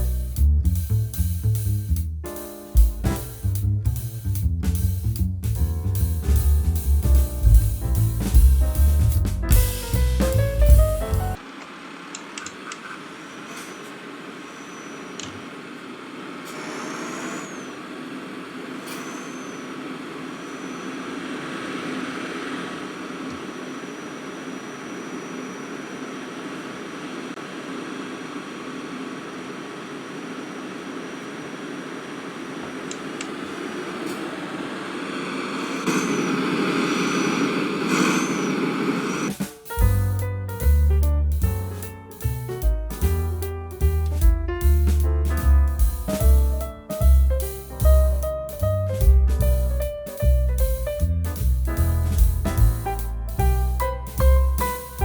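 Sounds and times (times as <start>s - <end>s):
vehicle engine running: 2.8s - 55.0s
rushing air: 33.3s - 39.7s.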